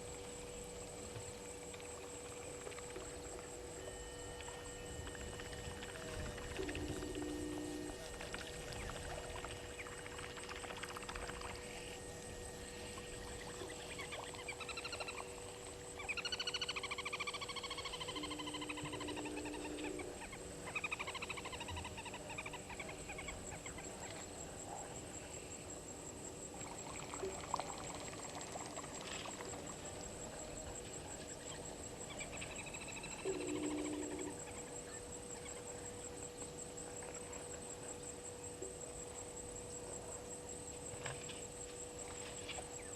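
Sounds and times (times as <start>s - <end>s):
high-pitched insect drone: 0.0s - 42.9s
bird calls with pulsing notes: 1.7s - 12.0s, 12.8s - 24.2s, 31.3s - 36.3s.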